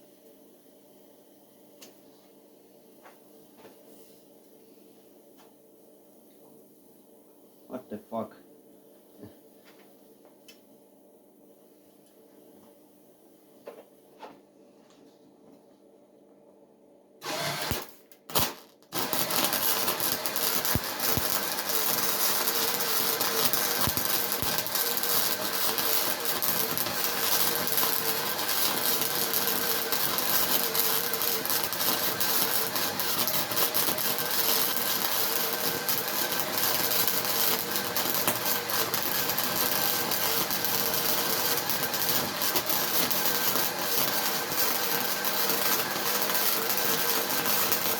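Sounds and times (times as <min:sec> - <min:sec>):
electric welding arc crackling: 0:17.2 - 0:47.9.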